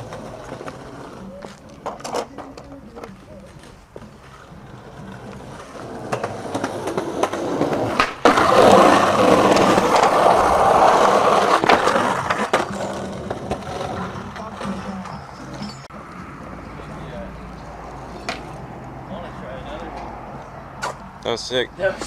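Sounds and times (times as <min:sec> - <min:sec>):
skateboard clacks: 0:00.0 - 0:15.8, 0:18.1 - 0:18.6
skateboard wheels rolling on concrete: 0:00.0 - 0:22.0.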